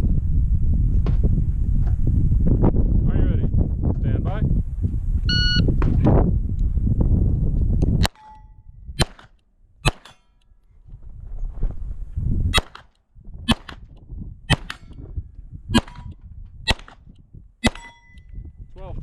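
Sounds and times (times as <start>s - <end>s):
steel target plates ringing: 8.1s - 8.7s, 17.6s - 18.3s
pistol shots: 9.0s - 10.2s, 12.6s - 12.9s, 13.5s - 13.9s, 14.5s - 15.0s, 15.8s - 18.2s.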